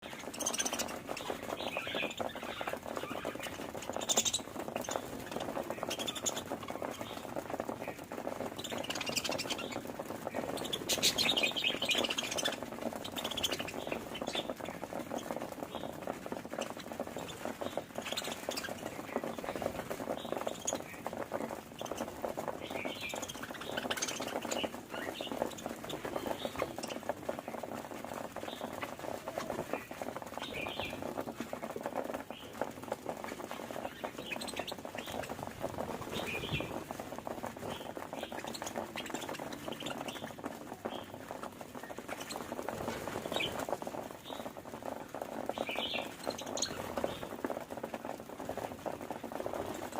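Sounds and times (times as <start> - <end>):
budgerigars chirping: 0.1 - 7.3, 10.4 - 14.6.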